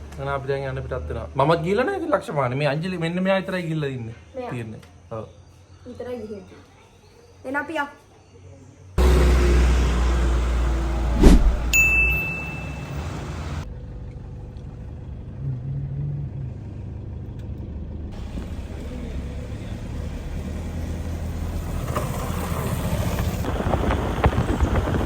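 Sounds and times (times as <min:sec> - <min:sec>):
car engine and road rumble: 0:09.0 - 0:25.0.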